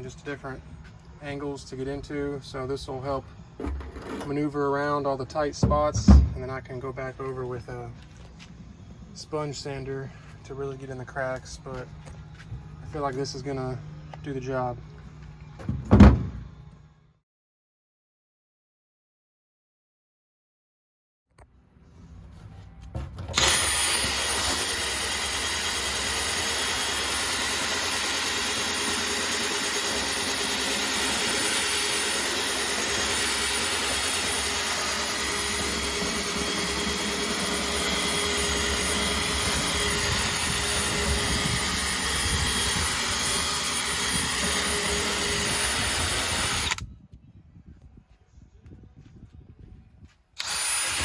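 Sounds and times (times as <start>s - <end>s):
electric drill spinning scuffing brush: 23.3s - 46.8s, 50.4s - 51.0s.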